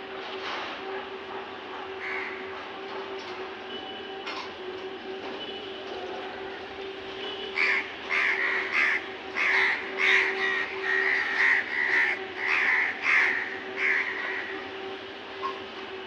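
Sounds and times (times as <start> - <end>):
crows cawing: 2.0 - 2.4, 7.6 - 14.6.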